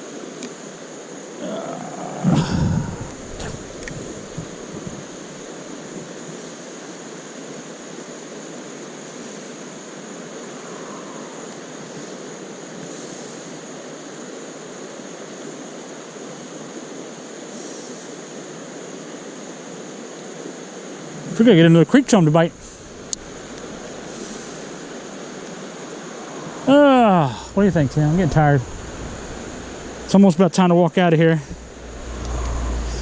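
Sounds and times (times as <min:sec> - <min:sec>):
creek rapids rushing: 0:01.0 - 0:07.5, 0:18.1 - 0:33.0
faint low bumps: 0:02.6 - 0:05.2, 0:21.9 - 0:25.4, 0:26.3 - 0:30.3, 0:31.0 - 0:33.0.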